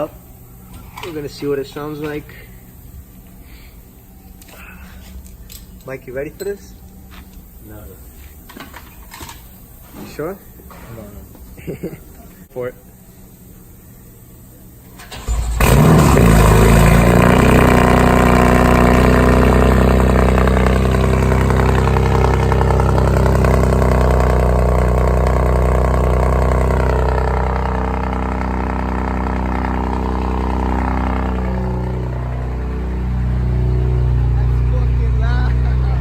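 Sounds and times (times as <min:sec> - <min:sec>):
car engine starting and idling: 0:14.9 - 0:36.0.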